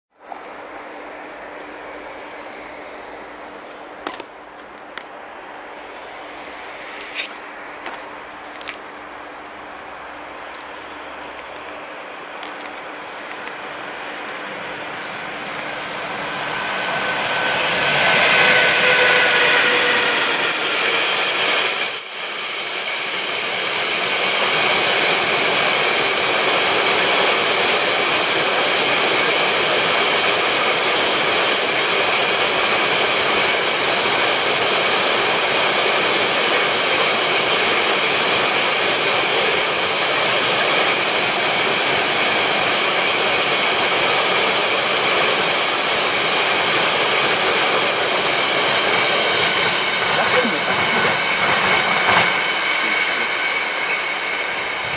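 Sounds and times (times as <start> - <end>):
electric locomotive whine: 0.2 - 54.9
train wheels rumbling on rail: 0.2 - 54.9.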